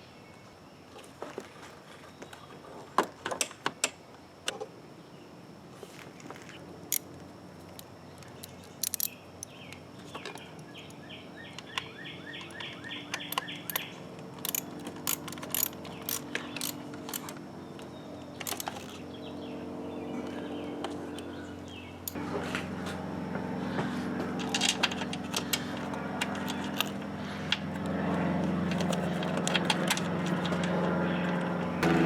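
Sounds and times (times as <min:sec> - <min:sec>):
clinks of hand tools and parts: 0:07.7 - 0:11.0, 0:12.4 - 0:17.4, 0:18.4 - 0:19.0, 0:24.4 - 0:27.0.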